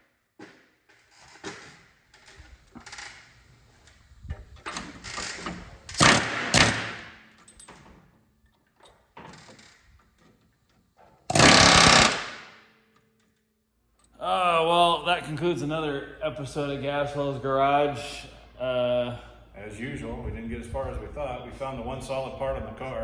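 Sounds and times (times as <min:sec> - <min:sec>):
power tools grinding or hammering: 0:11.3 - 0:12.4.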